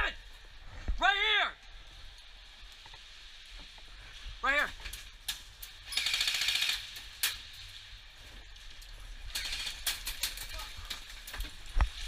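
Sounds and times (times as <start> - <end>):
airsoft guns firing bursts: 5.8 - 7.0.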